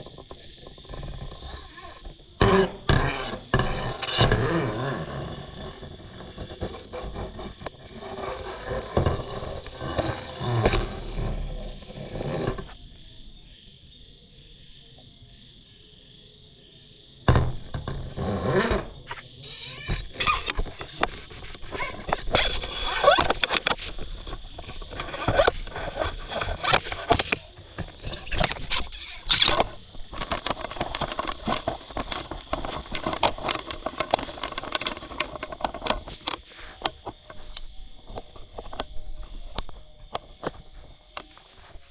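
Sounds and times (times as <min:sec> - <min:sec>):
scratching clicks and scrapes: 0:00.0 - 0:12.8, 0:17.7 - 0:41.9
high-pitched squeaks: 0:18.5 - 0:35.4.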